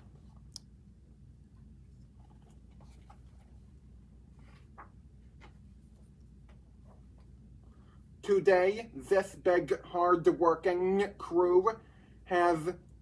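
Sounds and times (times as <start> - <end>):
book pages rustling: 2.0 - 7.4.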